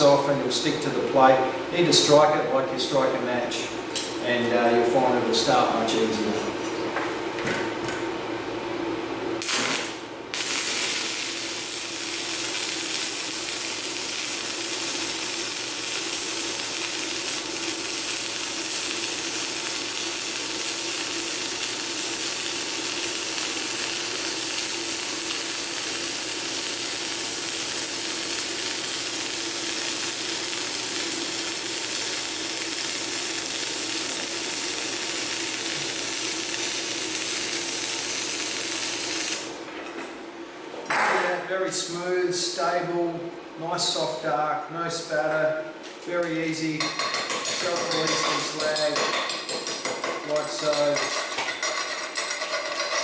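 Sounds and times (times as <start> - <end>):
welding arc crackling hiss: 9.3 - 39.6, 43.8 - 53.0.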